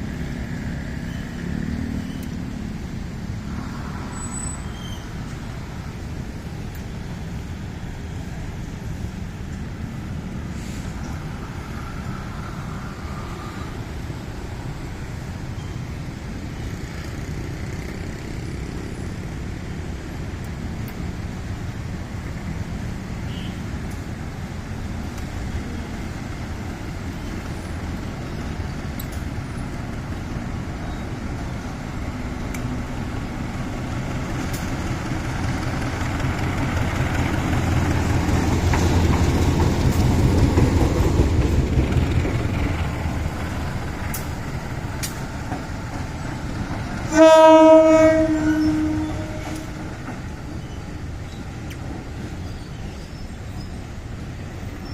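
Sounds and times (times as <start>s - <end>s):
vehicle approaching: 0.0s - 7.6s
road traffic rumble: 0.0s - 54.9s.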